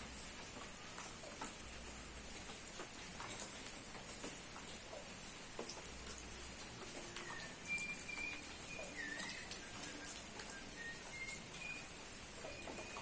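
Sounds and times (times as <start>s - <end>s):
rain pattering: 0.0s - 13.0s
water drips: 0.0s - 13.0s
bird whistled calls: 7.2s - 13.0s.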